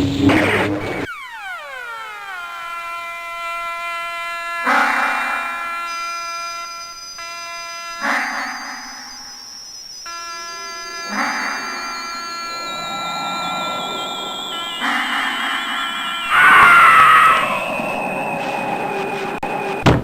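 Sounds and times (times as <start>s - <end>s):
electronic buzz: 0.0s - 19.9s
high wavering whistle tone: 1.0s - 19.9s
short noisy bursts: 10.1s - 19.8s.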